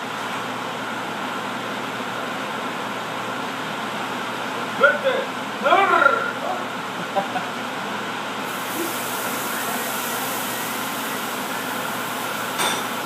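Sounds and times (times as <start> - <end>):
steady hissing: 8.4 - 13.0.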